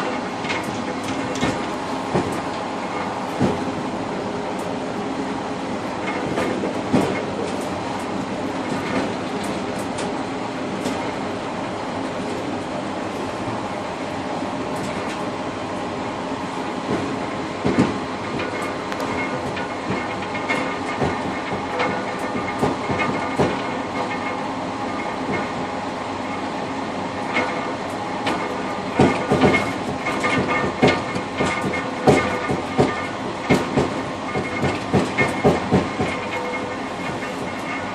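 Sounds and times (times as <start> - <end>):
train wheels rumbling on rails: 0.0 - 37.9
wheels knocking on rail joints: 16.9 - 24.0, 27.5 - 37.9.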